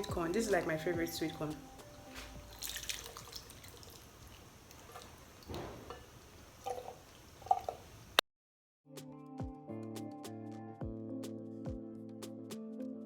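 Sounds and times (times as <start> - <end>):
background music: 0.0 - 3.2, 8.9 - 13.0
wet squelching of food in pot: 0.0 - 8.2
light knocks: 5.5 - 6.1.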